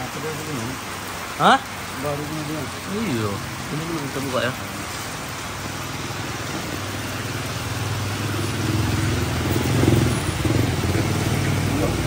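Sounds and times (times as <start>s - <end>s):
motorcycle engine running: 5.5s - 12.0s.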